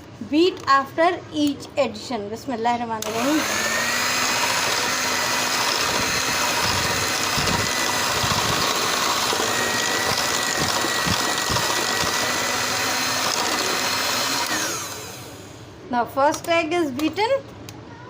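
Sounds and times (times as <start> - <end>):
electric mixer running: 3.0 - 15.7.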